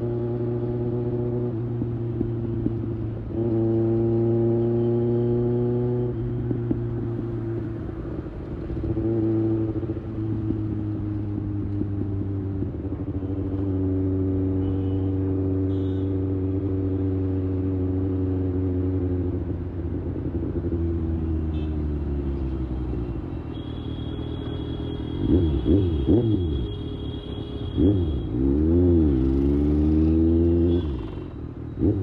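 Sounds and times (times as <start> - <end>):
motorcycle engine cruising: 27.7 - 32.0.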